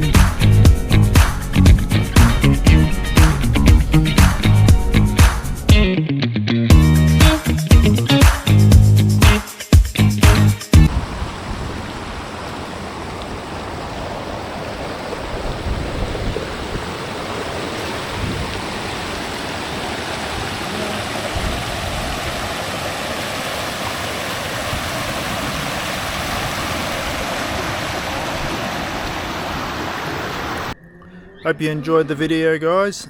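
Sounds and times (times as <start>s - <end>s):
water rushing over rocks: 10.9s - 30.8s.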